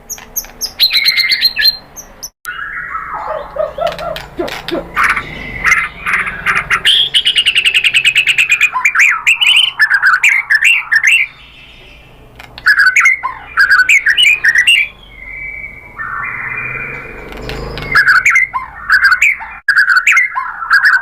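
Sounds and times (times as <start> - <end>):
bird singing trills and phrases: 0.0 - 21.0.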